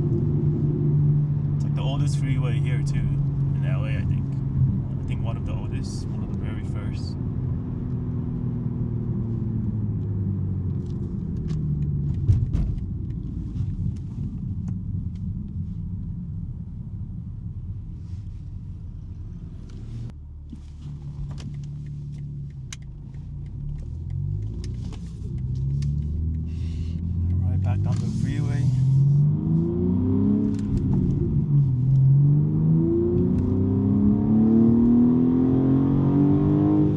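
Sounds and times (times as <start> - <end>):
car engine exhaust drone: 0.0 - 36.9.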